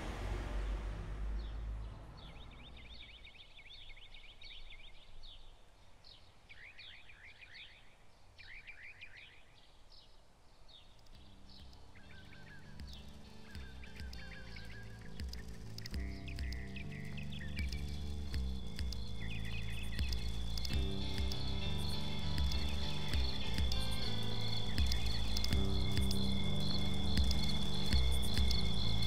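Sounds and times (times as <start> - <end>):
soft sustained music notes: 0.0 - 5.0, 11.1 - 29.0
outdoor background noise: 0.0 - 29.0
songbirds chirping: 0.0 - 29.0.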